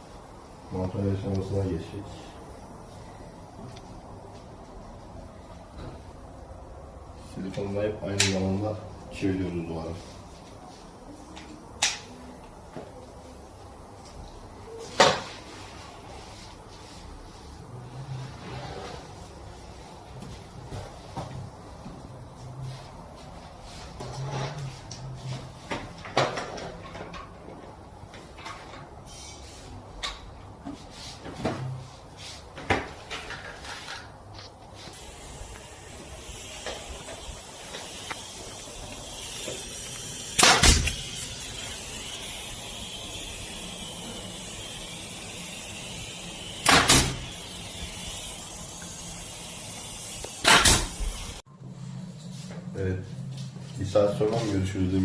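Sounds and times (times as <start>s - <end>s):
steady hiss: 34.6s - 51.4s.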